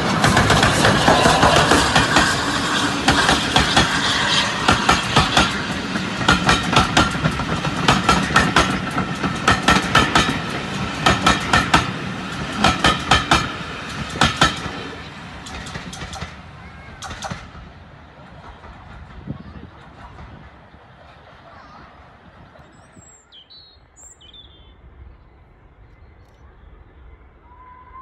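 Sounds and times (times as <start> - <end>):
train wheels clattering over rail joints: 0.0 - 20.8.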